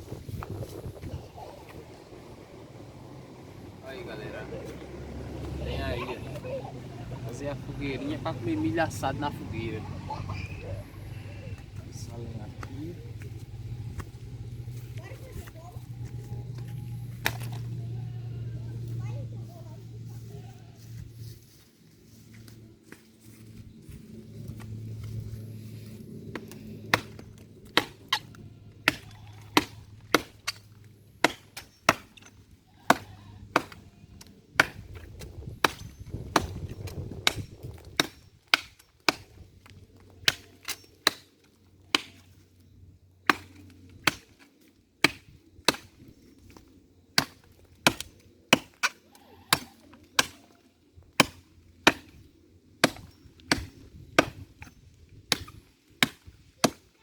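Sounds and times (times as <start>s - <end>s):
firewood being chopped: 12.6s - 17.8s, 26.3s - 42.4s, 43.2s - 57.0s.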